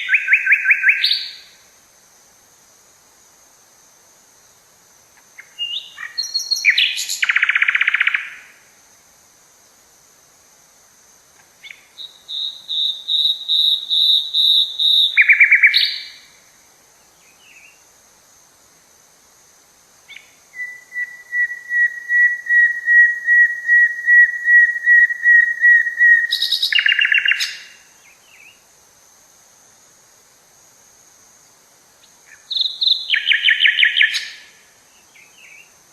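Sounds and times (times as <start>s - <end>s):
forest bird singing: 0.0s - 1.6s, 5.2s - 8.6s, 11.4s - 17.9s, 20.0s - 28.7s, 32.0s - 35.9s.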